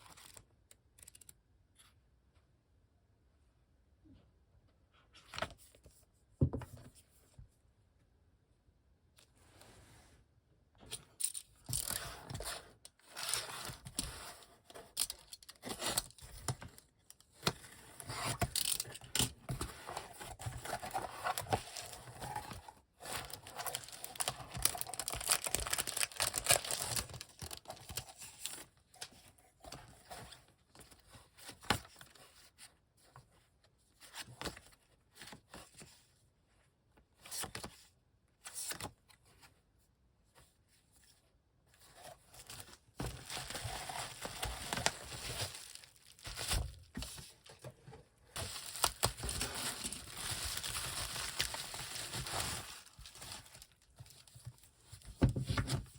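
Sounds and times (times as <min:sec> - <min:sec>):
plastic wrap tearing and crinkling: 0:23.2 - 0:28.0, 0:43.1 - 0:46.9, 0:48.4 - 0:54.2.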